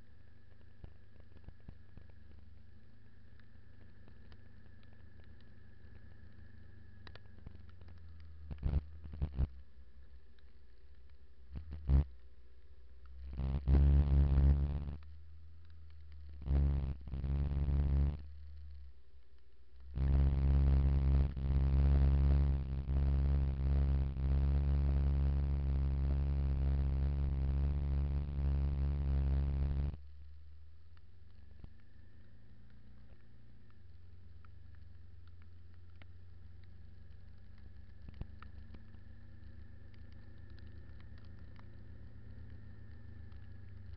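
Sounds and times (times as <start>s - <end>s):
sharp clicks: 30.9s - 43.9s.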